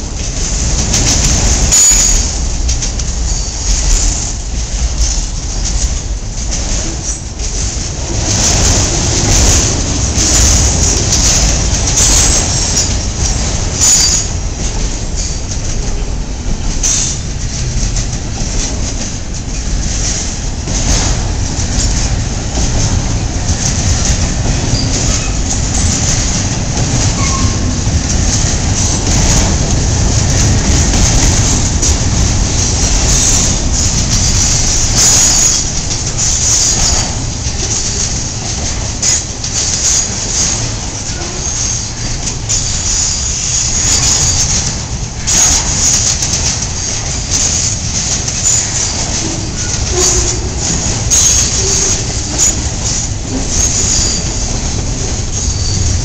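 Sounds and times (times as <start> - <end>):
train wheels rumbling on rail: 0.0 - 56.0
high-pitched wheel squeal: 1.7 - 2.4, 51.1 - 52.6, 53.6 - 54.4.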